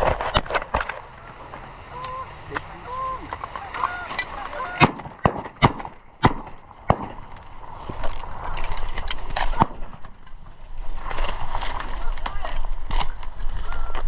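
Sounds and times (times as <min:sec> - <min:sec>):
geese honking: 0:01.0 - 0:05.0
shotgun blasts: 0:04.7 - 0:07.4.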